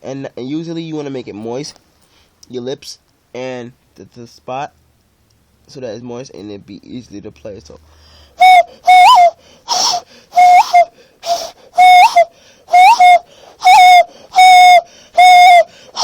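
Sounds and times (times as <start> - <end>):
hand whistle hooting notes: 8.4 - 16.0.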